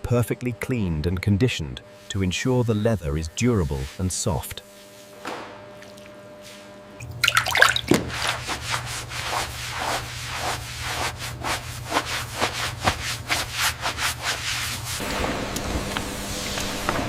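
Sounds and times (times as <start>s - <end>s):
steady low hum: 0.0s - 17.0s
rubbing strokes on snake skin: 3.4s - 5.2s, 8.1s - 15.0s.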